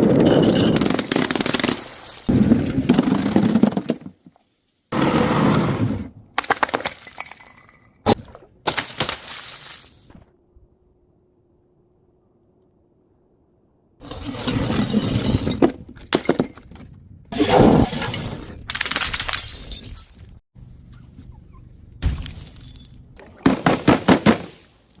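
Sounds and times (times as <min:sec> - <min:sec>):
glass shattering and crunching: 0:00.3 - 0:02.3, 0:18.7 - 0:20.4, 0:22.0 - 0:23.0.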